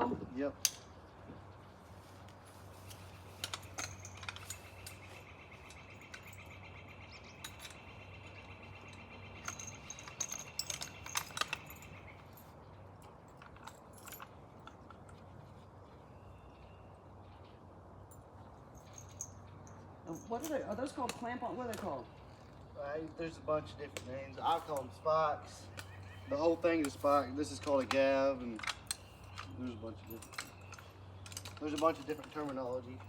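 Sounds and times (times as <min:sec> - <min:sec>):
metal climbing gear clinking: 0:00.6 - 0:01.0, 0:02.2 - 0:16.6, 0:18.0 - 0:23.0, 0:24.0 - 0:33.0.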